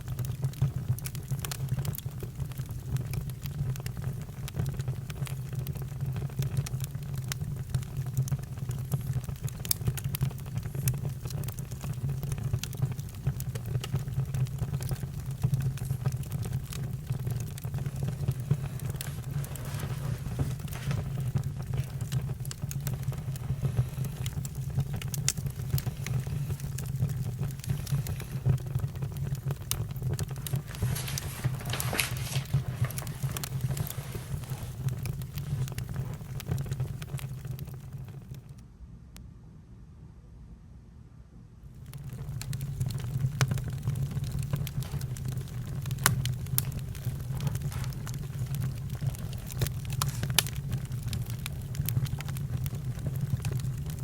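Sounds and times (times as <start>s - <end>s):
campfire crackling: 0.0s - 38.6s, 41.8s - 54.0s
low rumble of flames: 0.0s - 39.1s, 41.6s - 54.0s.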